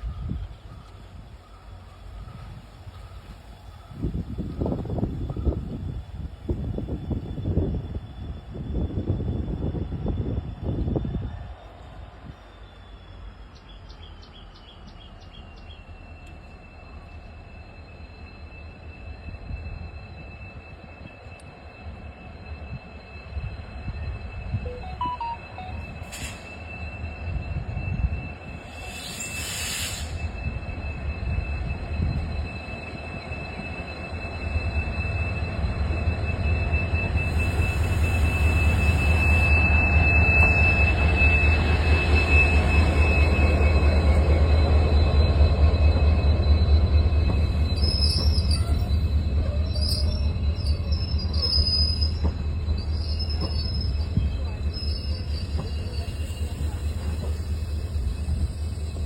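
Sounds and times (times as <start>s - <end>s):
train rumbling past: 0.0s - 59.0s
brief high squeals: 16.8s - 59.0s
thin high whine: 22.6s - 30.6s.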